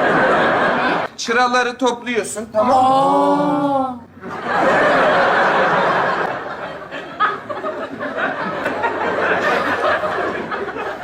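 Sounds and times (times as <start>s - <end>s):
studio audience laughing: 0.0s - 1.1s, 4.2s - 11.0s.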